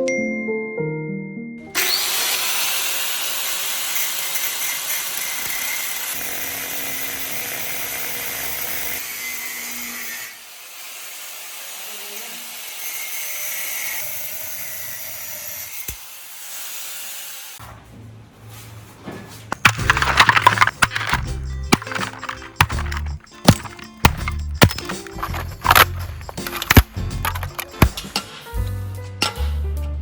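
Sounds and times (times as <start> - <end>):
power tool running: 1.8 - 10.0.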